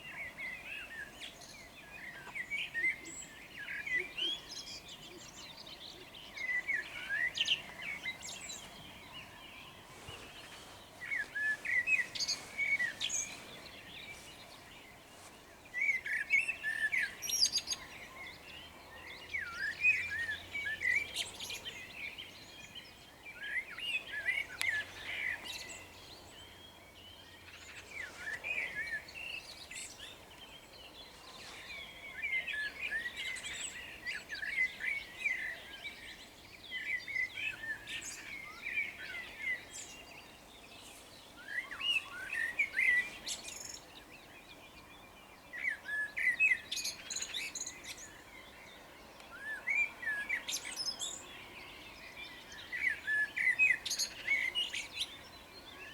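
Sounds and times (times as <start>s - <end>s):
songbird singing chirpy phrases: 0.0s - 55.9s.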